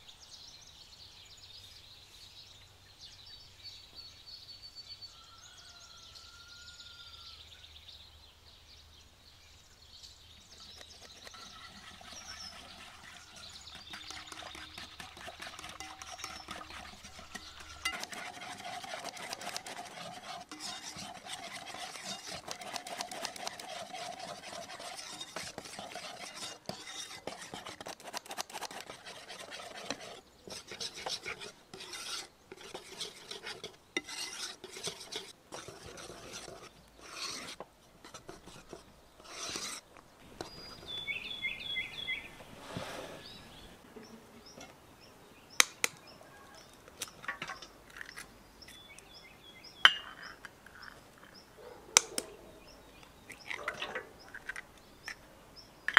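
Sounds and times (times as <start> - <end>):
utensil scraping a bowl: 10.5 - 43.5.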